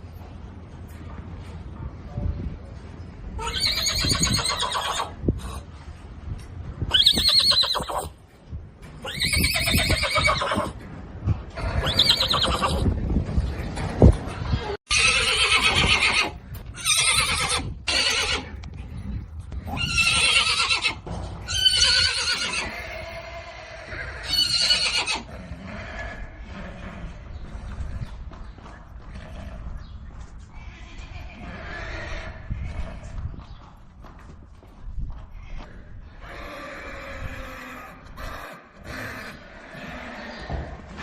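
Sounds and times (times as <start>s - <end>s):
horses whinnying: 3.4s - 5.6s, 6.9s - 8.2s, 9.0s - 10.8s, 11.6s - 13.0s, 14.4s - 18.6s, 19.6s - 28.1s, 35.5s - 41.0s.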